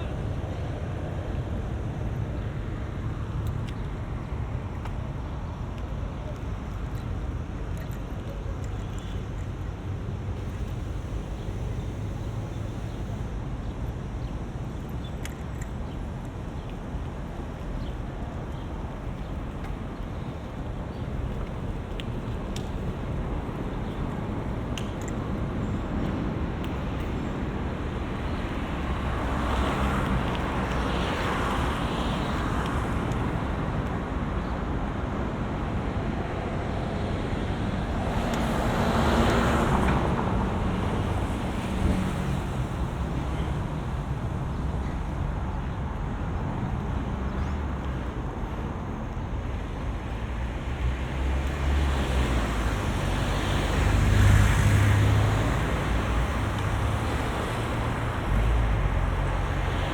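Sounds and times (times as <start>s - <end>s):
low wind rumble: 0.0s - 59.9s
road traffic passing: 0.0s - 59.9s.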